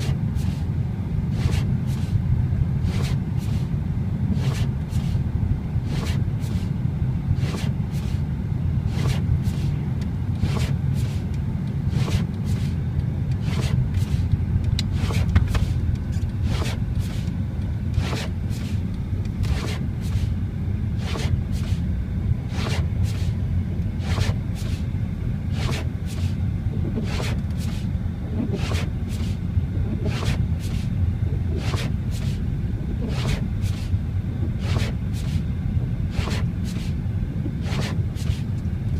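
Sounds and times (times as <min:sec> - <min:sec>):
car engine and road noise: 0:00.0 - 0:38.9
sharp ticks or scrapes: 0:07.4 - 0:08.2, 0:11.9 - 0:20.3, 0:25.5 - 0:29.4, 0:31.6 - 0:32.4, 0:33.0 - 0:35.4, 0:36.1 - 0:38.6.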